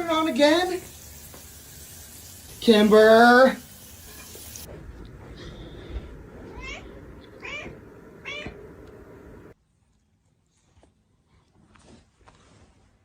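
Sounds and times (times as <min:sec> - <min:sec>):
cat meowing: 0:06.5 - 0:08.6.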